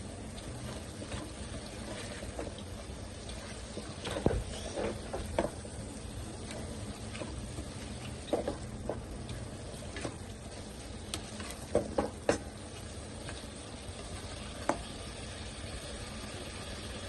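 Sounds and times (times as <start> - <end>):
frying sizzle: 0.0 - 17.0
spatula scraping pan: 3.5 - 5.6.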